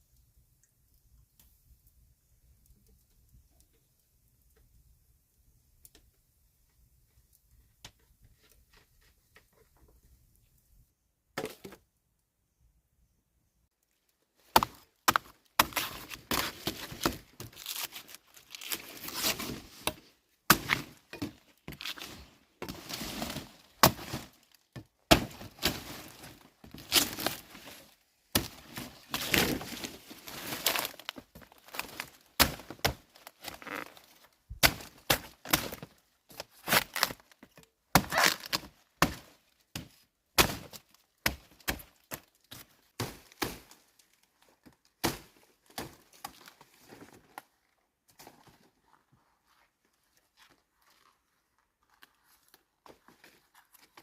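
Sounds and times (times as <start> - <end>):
rustling: 13.9 - 40.0.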